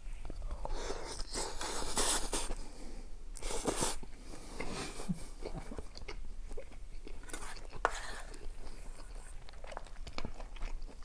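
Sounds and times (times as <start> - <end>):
person chewing: 3.4 - 11.0.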